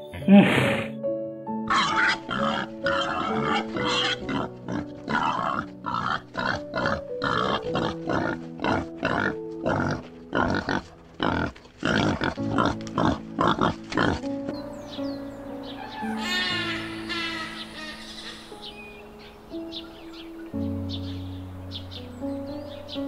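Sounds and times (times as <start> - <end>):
pigs grunting and squealing: 0.0 - 1.0, 1.7 - 14.6
soft piano music: 0.0 - 23.0.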